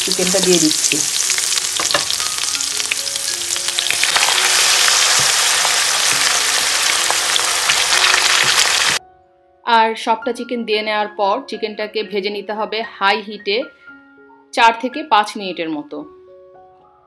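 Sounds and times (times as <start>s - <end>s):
chicken sizzling in hot oil: 0.0s - 9.0s.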